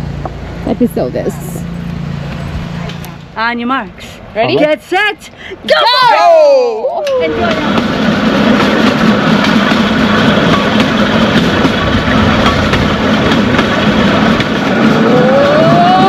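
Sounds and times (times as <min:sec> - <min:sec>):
train rumbling and rattling: 0:00.0 - 0:05.2, 0:07.0 - 0:16.0
rising tone: 0:14.9 - 0:16.0.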